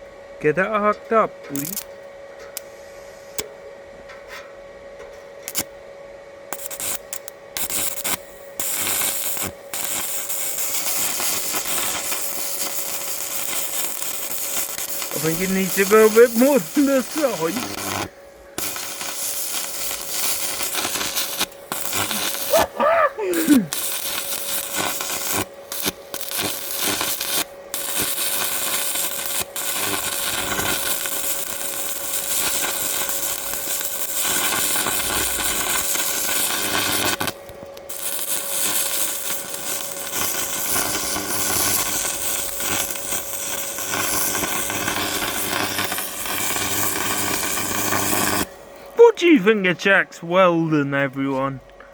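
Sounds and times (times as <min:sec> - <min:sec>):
arc welding crackle: 0:01.4 - 0:03.5, 0:05.4 - 0:05.8, 0:06.5 - 0:49.5.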